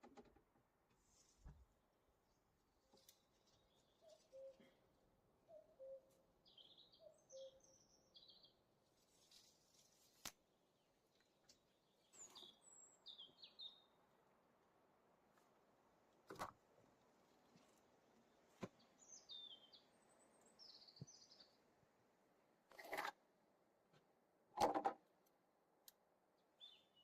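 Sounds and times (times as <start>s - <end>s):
birds chirping and trilling: 3.4s - 8.7s, 11.6s - 14.0s, 18.7s - 21.6s, 26.4s - 27.0s.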